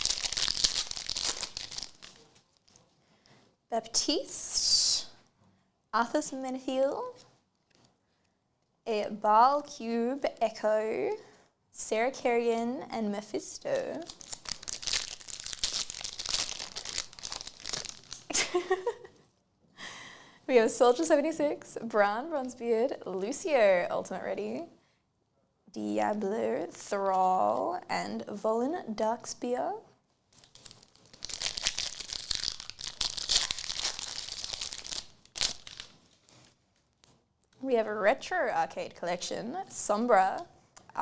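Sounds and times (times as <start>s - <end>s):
foil wrapper crinkling and tearing: 0.0s - 2.8s, 13.8s - 18.3s, 30.3s - 37.1s.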